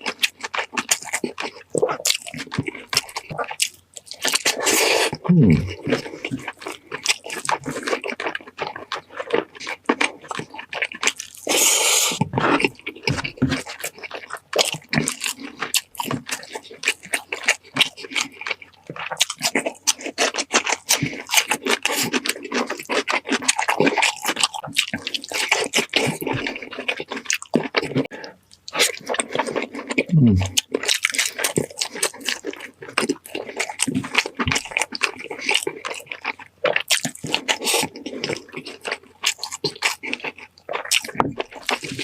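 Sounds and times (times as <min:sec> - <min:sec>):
wet chewing and lip smacks: 0:00.0 - 0:42.0
slurp: 0:11.4 - 0:12.6.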